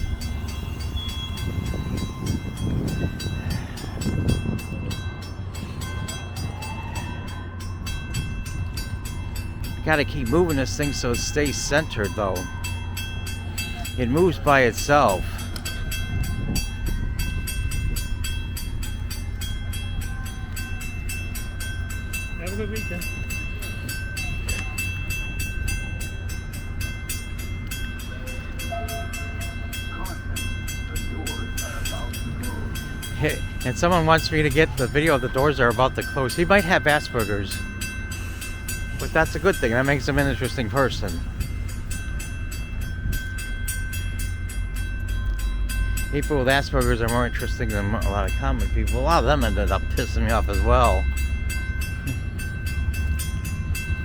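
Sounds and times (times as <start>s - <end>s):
bell dinging rapidly: 0.0s - 54.0s
train rumbling: 0.0s - 54.0s.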